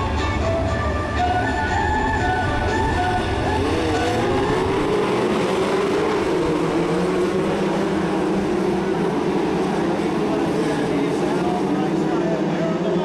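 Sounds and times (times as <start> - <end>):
stock car engines racing: 0.0 - 13.0.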